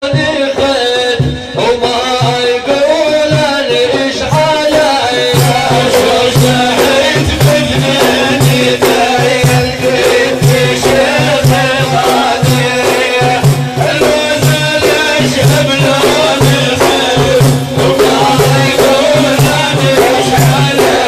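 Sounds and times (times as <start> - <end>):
drum beat: 0.0 - 21.0
sharp bright percussion strokes: 0.6 - 21.0
person chanting a melody: 1.6 - 21.0.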